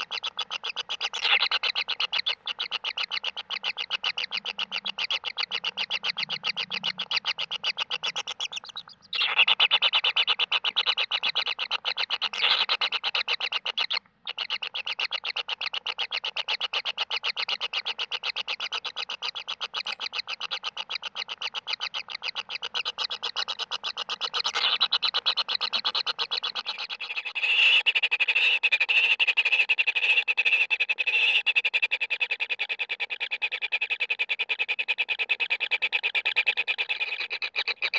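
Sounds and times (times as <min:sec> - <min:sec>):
nestlings begging buzzing trill: 0:00.0 - 0:15.8.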